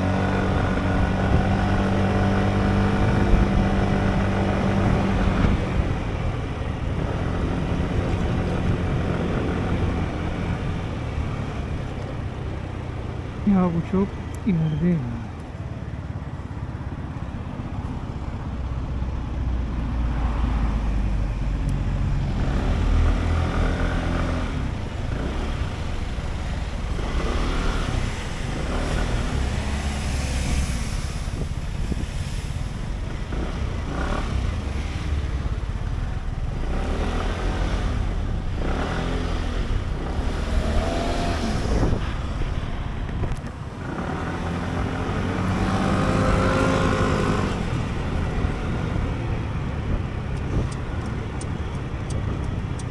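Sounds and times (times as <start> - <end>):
wind rumble on microphone: 0.0 - 13.4, 19.9 - 52.9
surrounding traffic: 0.0 - 52.9.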